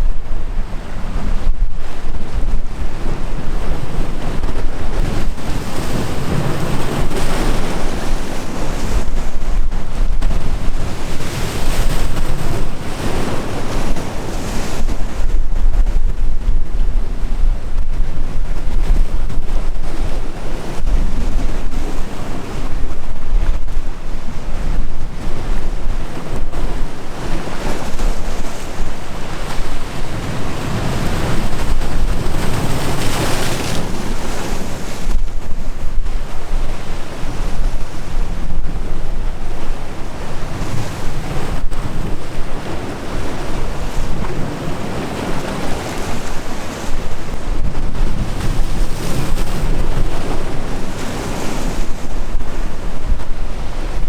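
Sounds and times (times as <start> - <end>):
sea waves breaking: 0.0 - 54.0
wind buffeting microphone: 0.0 - 54.0.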